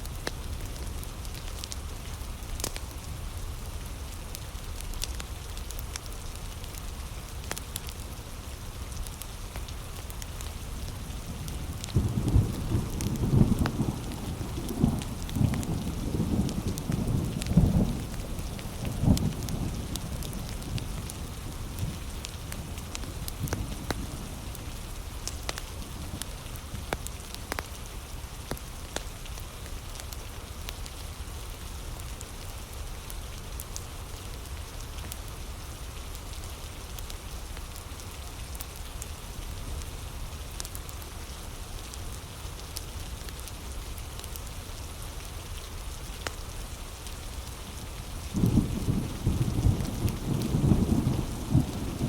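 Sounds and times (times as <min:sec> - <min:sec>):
heavy rain: 0:00.0 - 0:52.0
wood fire crackling: 0:00.0 - 0:52.0
thunder rumbling: 0:11.0 - 0:24.5, 0:48.3 - 0:52.0.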